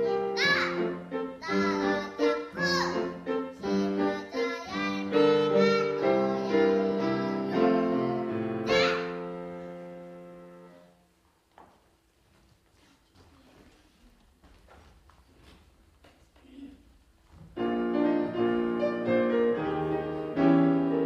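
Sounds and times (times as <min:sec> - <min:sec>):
piano accompaniment: 0:00.0 - 0:11.2, 0:17.4 - 0:21.0
child singing: 0:00.4 - 0:09.3.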